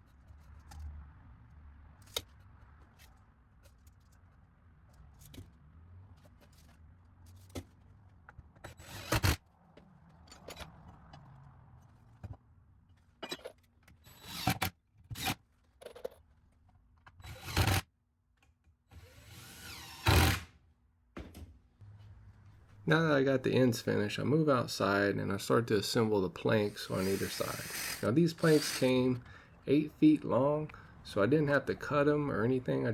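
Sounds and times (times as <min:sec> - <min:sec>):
power drill running in bursts: 0:19.0 - 0:20.4, 0:26.7 - 0:29.1.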